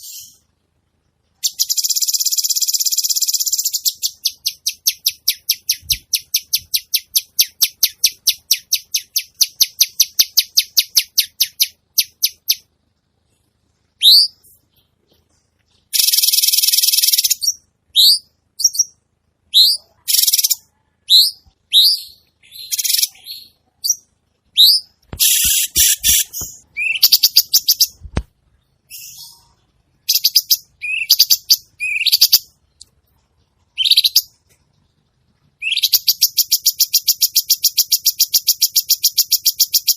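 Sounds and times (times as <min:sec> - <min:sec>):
recorded high bird chips: 0:00.0 - 0:00.5, 0:01.4 - 0:12.7, 0:13.9 - 0:34.9, 0:35.5 - 0:39.9
upward-sweeping bird whistles: 0:14.0 - 0:14.5, 0:24.6 - 0:27.9, 0:30.1 - 0:32.4
harsh buzzy bird bursts: 0:25.2 - 0:27.9.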